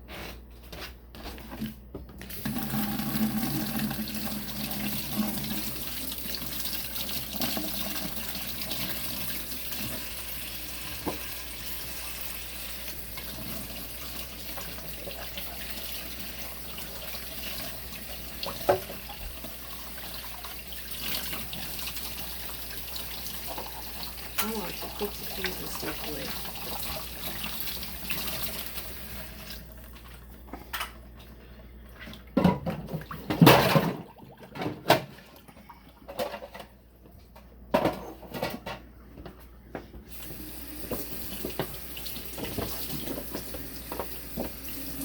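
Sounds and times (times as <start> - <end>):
tap water running into sink: 2.2 - 30.2, 40.1 - 45.0
dishes being washed: 2.2 - 38.9, 40.1 - 45.0.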